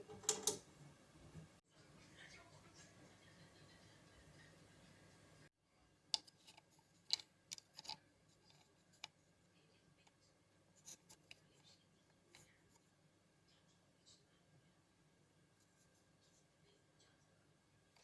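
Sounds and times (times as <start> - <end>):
light clicks and taps: 0.0 - 0.6.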